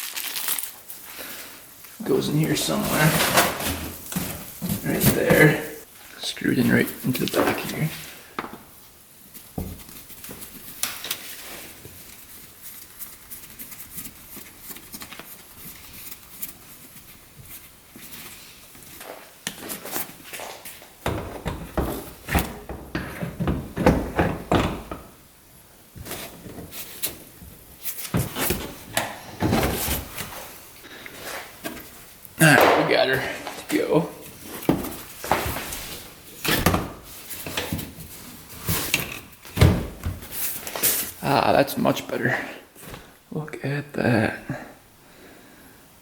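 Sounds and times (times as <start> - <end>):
rustling: 0.0 - 41.3
knocks and clunks: 21.0 - 25.2.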